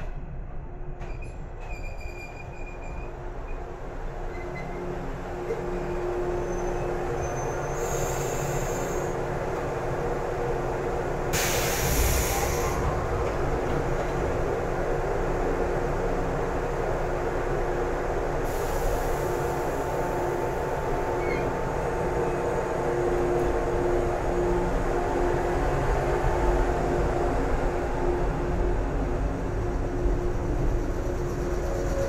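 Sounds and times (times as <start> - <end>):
train carriage rumble: 0.0 - 32.0
hiss bursts: 11.3 - 12.8, 18.5 - 20.0.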